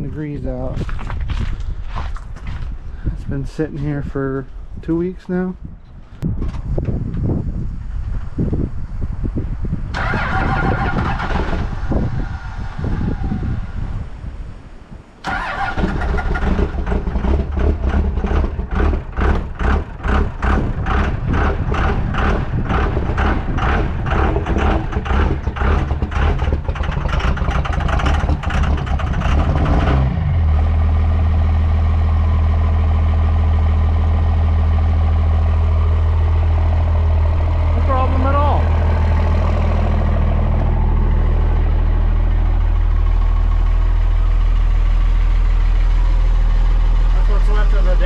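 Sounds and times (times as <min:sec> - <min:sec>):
cold engine starting and idling: 0:09.8 - 0:12.3, 0:15.2 - 0:48.0.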